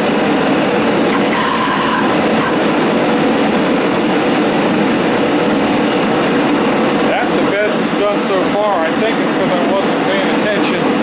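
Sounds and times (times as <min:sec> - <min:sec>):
gas forge burners roaring: 0:00.0 - 0:11.0.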